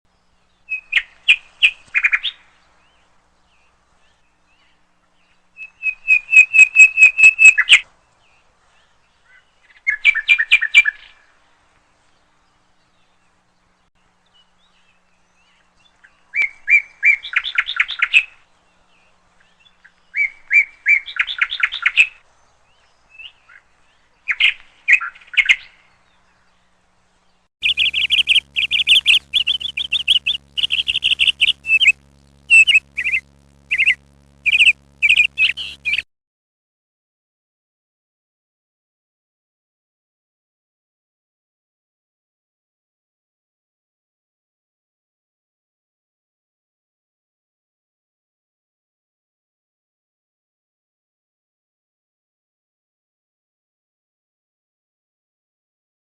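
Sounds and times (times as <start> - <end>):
songbird chirping: 25.6 - 36.0
faint low hum: 25.9 - 36.0.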